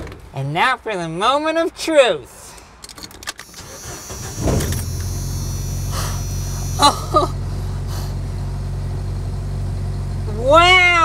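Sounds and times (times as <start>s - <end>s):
engine cranking and idling: 3.4s - 11.0s
thin high whine: 3.5s - 7.3s.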